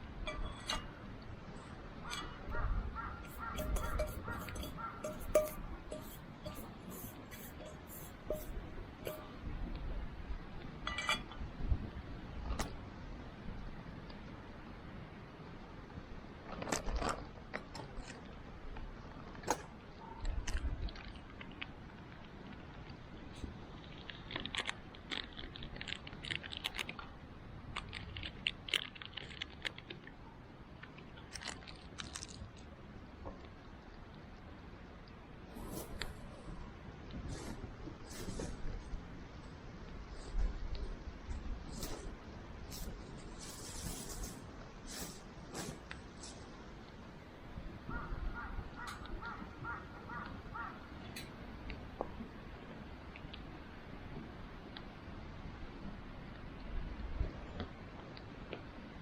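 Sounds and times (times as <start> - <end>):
bonfire burning: 0.0 - 47.9
ringing clink: 3.6 - 6.6
fire crackle: 16.3 - 47.9.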